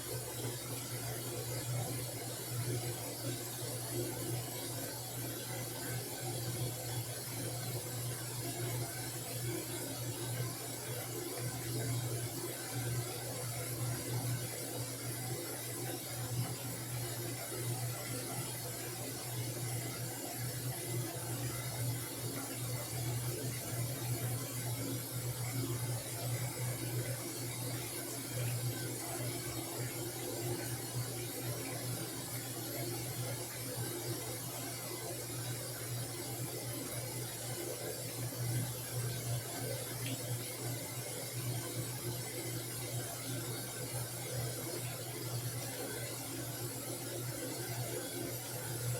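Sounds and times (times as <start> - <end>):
washing machine humming: 0.0 - 48.9.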